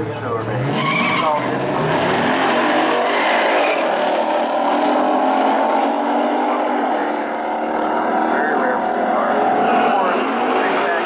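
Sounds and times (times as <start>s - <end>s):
car engines at full throttle: 0.0s - 11.0s.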